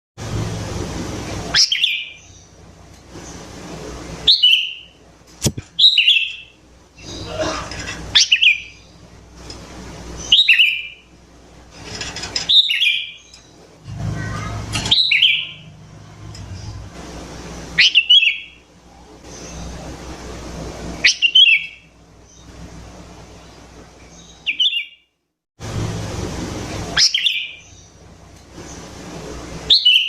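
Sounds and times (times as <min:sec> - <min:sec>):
sharp click: 0:05.4 - 0:05.8.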